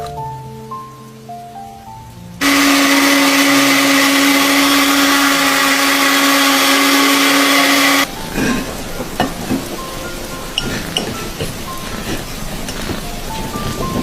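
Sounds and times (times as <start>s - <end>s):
small electric motor whirring: 2.4s - 8.1s
rain patter: 8.0s - 14.0s.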